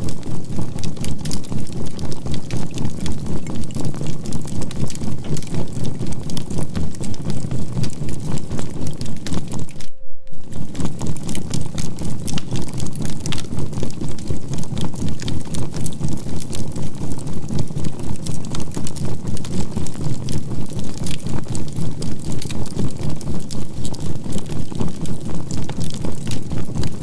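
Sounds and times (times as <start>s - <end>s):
low throbbing hum: 0.0s - 18.2s
campfire crackling: 0.0s - 27.0s
steady tone: 9.6s - 12.1s.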